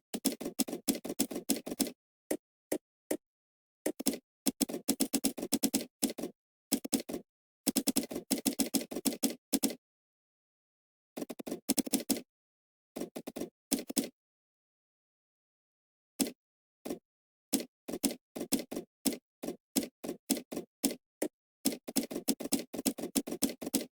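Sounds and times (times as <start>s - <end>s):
computer keyboard typing: 0.2s - 1.9s, 3.9s - 9.7s, 11.3s - 12.2s, 21.7s - 23.9s.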